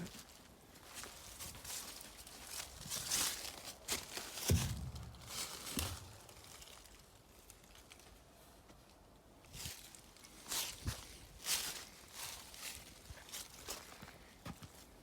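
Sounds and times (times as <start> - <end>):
footsteps crunching: 0.8 - 6.8
heavy thud: 4.4 - 6.3.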